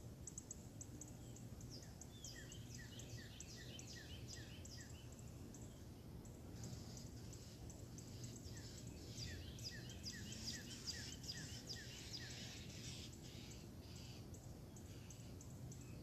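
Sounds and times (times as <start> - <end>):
songbird singing high notes: 8.2 - 14.0.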